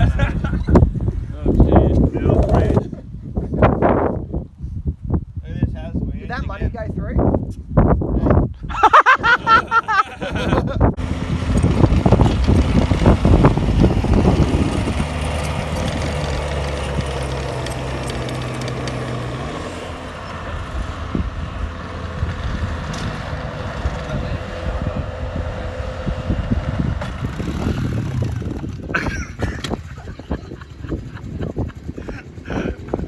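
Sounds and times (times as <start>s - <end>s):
wind on microphone: 0.0s - 18.6s, 19.9s - 33.0s
vehicle engine idling: 11.0s - 28.9s.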